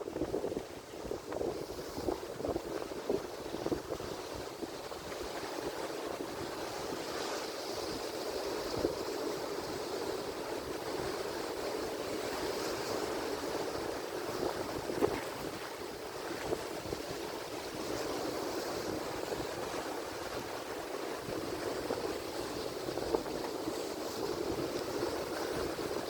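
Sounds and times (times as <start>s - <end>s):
ocean surf breaking waves: 0.0s - 26.0s.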